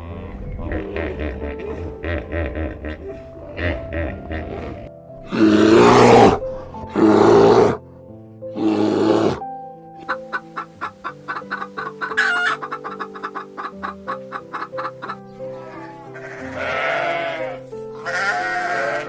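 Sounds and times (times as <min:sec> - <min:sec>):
background music: 0:00.0 - 0:19.0
chickens calling and clucking: 0:10.0 - 0:15.7.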